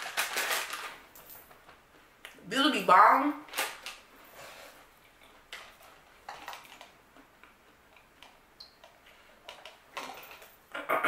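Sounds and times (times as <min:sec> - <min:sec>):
cookie crunching when chewed: 0:05.0 - 0:10.5.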